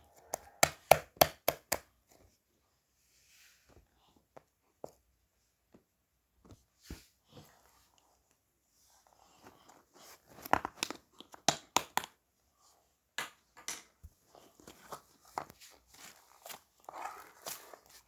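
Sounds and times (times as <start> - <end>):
crinkling and crackling handling noise: 14.1 - 18.0.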